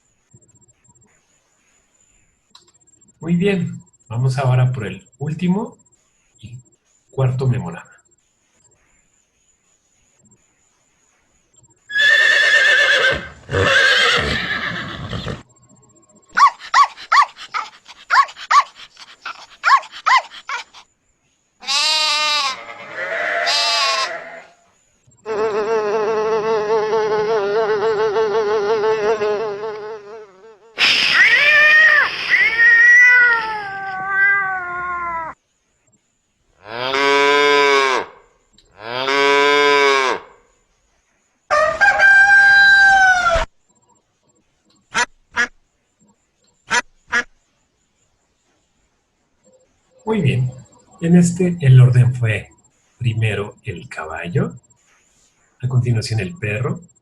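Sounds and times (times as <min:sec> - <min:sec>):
horse neighing: 0:11.9 - 0:15.4, 0:21.7 - 0:24.6
dog barking: 0:16.3 - 0:20.8
sheep bleating: 0:21.6 - 0:24.6
mosquito buzzing: 0:21.7 - 0:30.8, 0:36.5 - 0:40.5
cat meowing: 0:30.8 - 0:35.4.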